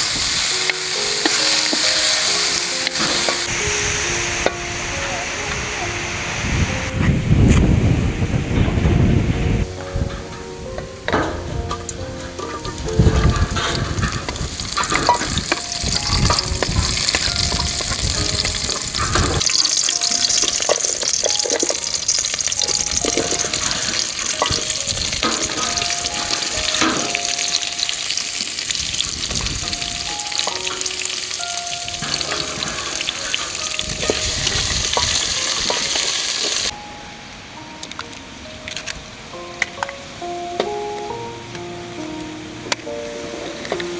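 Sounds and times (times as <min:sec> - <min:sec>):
stirring and knocking in pan: 0:00.0 - 0:03.5, 0:11.1 - 0:36.7
food sizzling in a hot pan: 0:00.0 - 0:04.8, 0:12.4 - 0:36.7.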